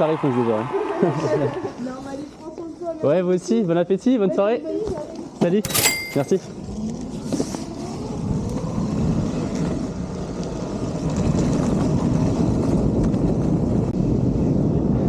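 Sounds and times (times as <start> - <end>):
vehicle engine rumble: 6.4 - 15.0.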